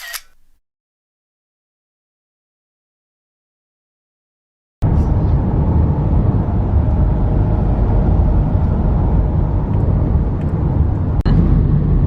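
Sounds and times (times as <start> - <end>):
road and engine rumble: 4.8 - 12.0.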